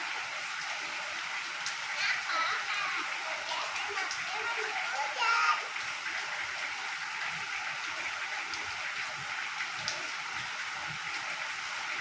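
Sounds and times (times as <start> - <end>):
rain falling: 0.0 - 12.0
raindrop ticks: 1.6 - 5.4.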